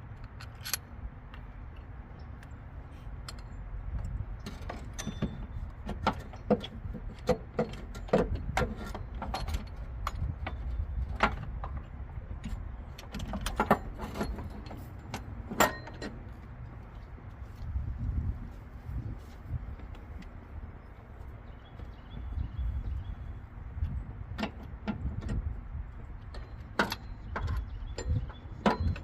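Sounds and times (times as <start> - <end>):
metallic clicks and knocks: 0.1 - 2.6, 3.2 - 17.0, 23.8 - 29.0.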